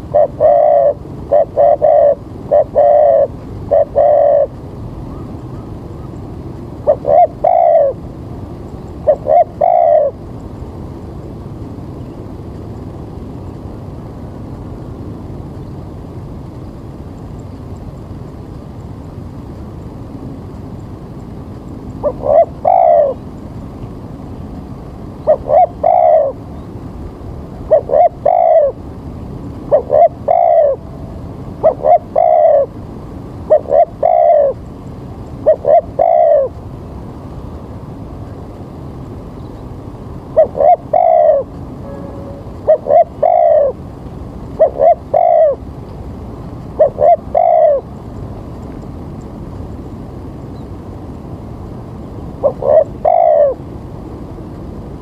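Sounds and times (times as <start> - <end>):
dove cooing: 0.0 - 6.2, 6.8 - 8.2, 8.9 - 10.3, 21.9 - 23.4, 25.0 - 26.8, 27.5 - 28.9, 29.6 - 36.7, 40.2 - 45.8, 46.6 - 48.0, 52.3 - 53.7.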